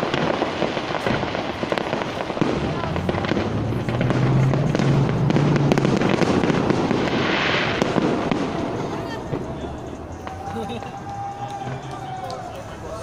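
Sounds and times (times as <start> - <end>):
continuous rumble: 0.0 - 13.0
fireworks bangs and crackles: 0.0 - 13.0.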